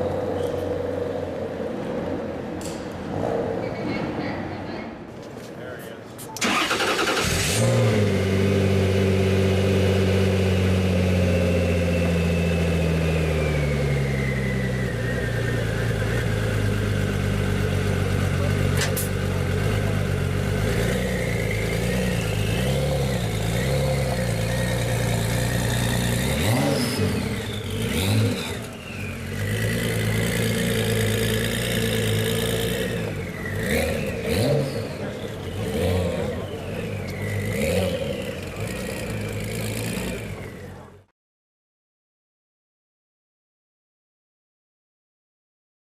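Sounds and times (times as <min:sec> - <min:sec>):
car engine idling: 0:06.4 - 0:41.0.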